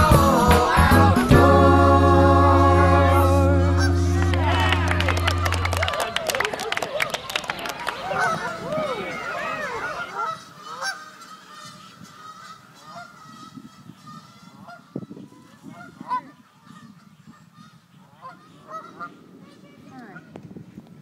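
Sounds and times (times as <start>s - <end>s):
waterfowl honking: 2.6s - 6.0s, 8.0s - 19.2s.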